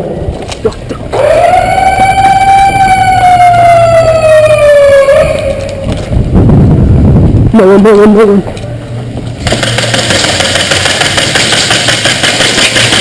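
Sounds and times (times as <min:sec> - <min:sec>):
siren wailing: 0:01.1 - 0:06.1.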